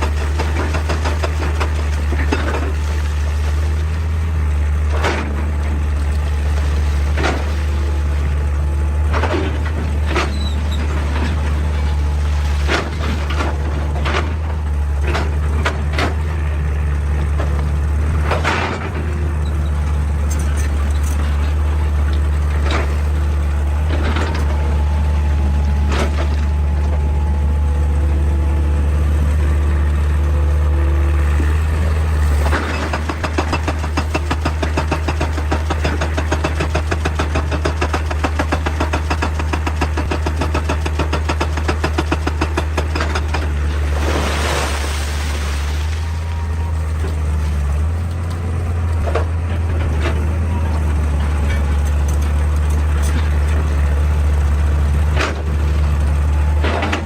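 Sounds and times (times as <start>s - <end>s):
excavator diesel engine: 0.0s - 57.0s
machine clanking against rock: 32.4s - 44.0s.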